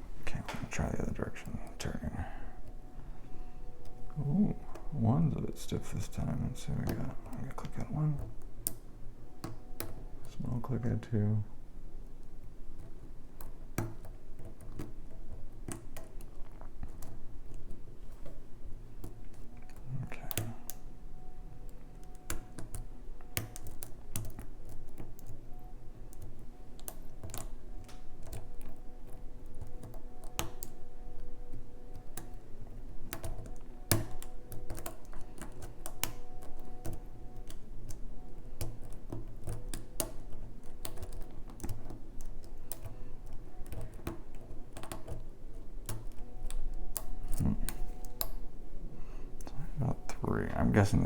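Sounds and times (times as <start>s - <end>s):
lock pick clicking pins: 12.1s - 48.5s.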